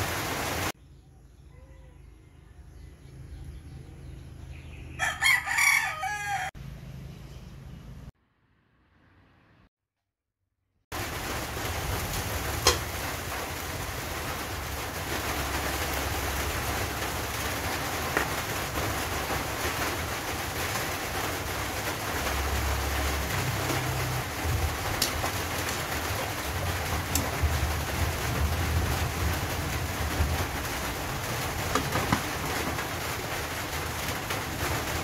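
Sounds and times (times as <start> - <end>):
vegetables sizzling in a wok: 11.0 - 24.4.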